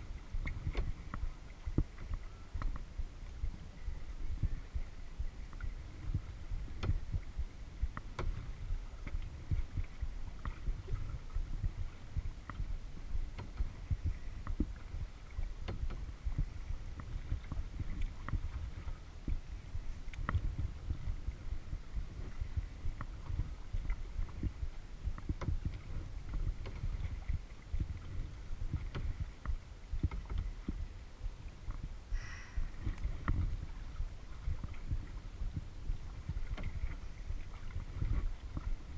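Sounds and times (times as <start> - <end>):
low uneven rumble: 0.0 - 38.9
water lapping against kayak hull: 0.0 - 38.9
low thumps: 0.2 - 30.9.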